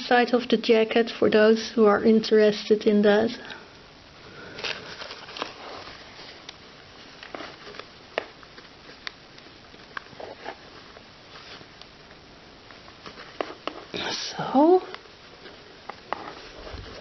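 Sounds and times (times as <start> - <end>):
fabric rustling: 4.5 - 7.9, 15.4 - 17.0.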